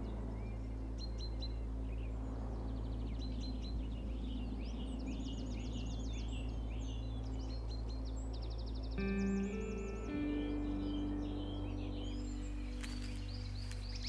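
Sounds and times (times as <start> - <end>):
birds singing and chirping: 0.0 - 14.0
steady low drone: 0.0 - 14.0.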